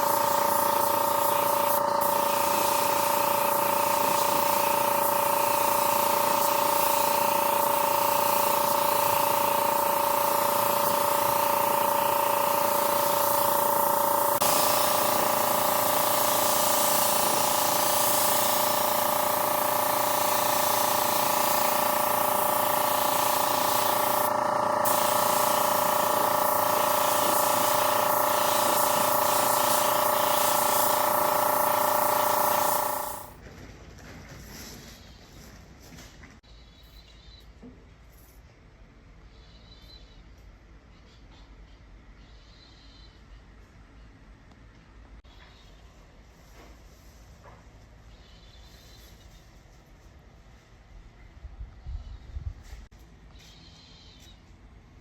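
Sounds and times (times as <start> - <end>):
spray gun hissing: 0.0 - 33.4.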